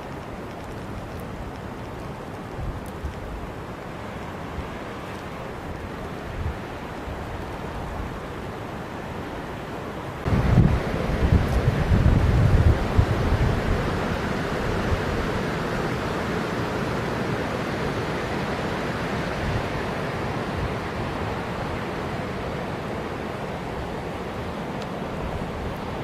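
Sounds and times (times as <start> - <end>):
strong wind rushing through forest: 0.0 - 26.0
wind buffeting microphone: 10.2 - 16.1.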